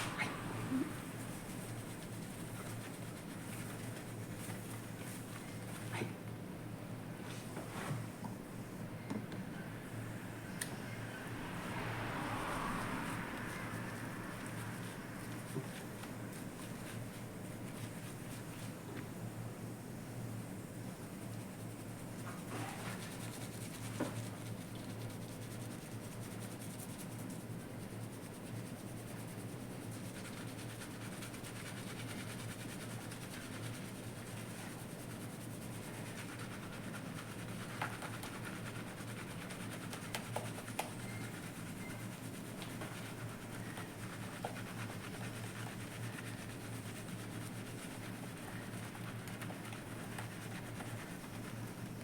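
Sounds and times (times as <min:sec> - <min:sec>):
fingers rubbing lathered hair: 0:22.8 - 0:52.0.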